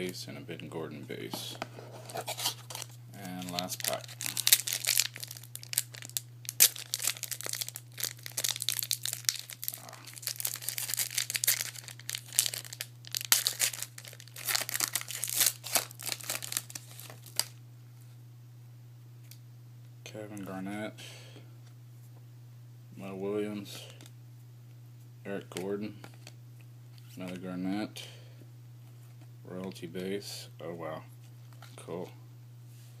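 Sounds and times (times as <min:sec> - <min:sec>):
wrapper tearing and crinkling: 0:02.1 - 0:17.6.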